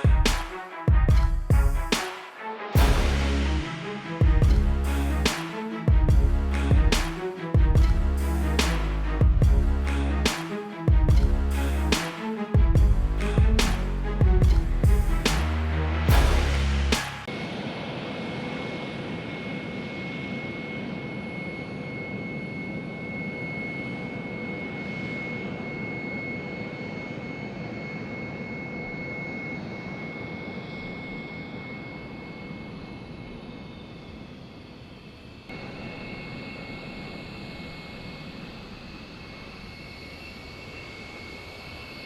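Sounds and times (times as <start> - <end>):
jet engines running with whine: 16.5 - 42.0.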